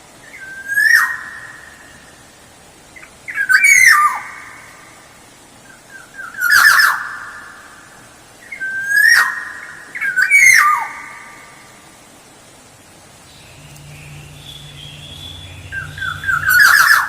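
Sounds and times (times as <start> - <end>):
oriole whistling song: 13.3 - 17.0.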